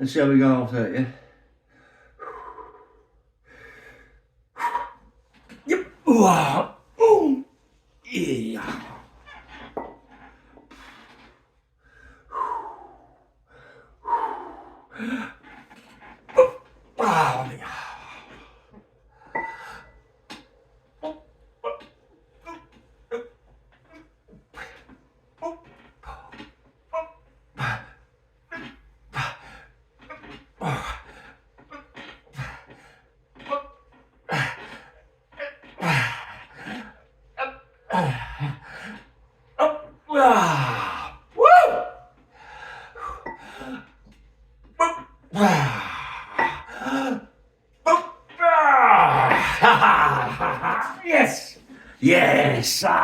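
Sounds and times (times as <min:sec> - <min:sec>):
man breathing hard: 0:01.3 - 0:05.0, 0:11.8 - 0:16.0, 0:42.2 - 0:44.1, 0:45.4 - 0:47.4
man grunting: 0:05.7 - 0:07.5, 0:08.1 - 0:09.0, 0:16.4 - 0:18.1, 0:40.1 - 0:42.0, 0:44.8 - 0:47.2, 0:47.9 - 0:53.0.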